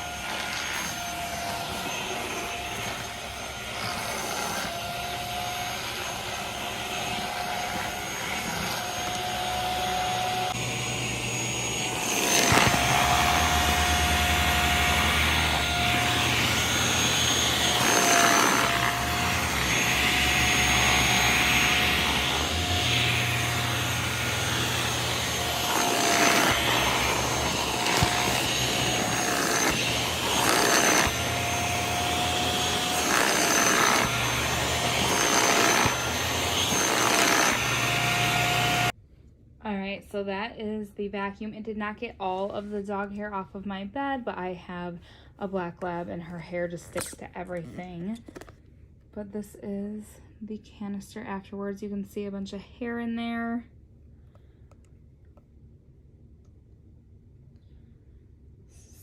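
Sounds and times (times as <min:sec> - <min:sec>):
vacuum motor whine and hum: 0:00.0 - 0:38.9.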